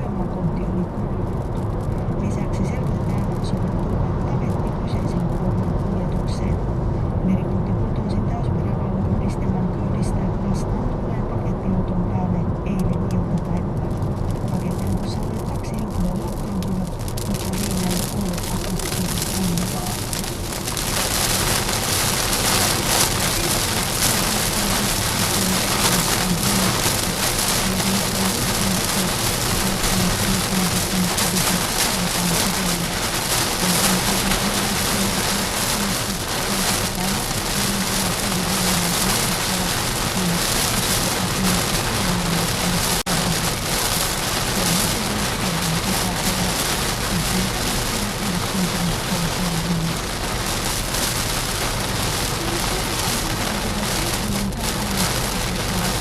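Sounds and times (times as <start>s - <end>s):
low steady hum: 0.0s - 56.0s
water pelting a car: 13.8s - 56.0s.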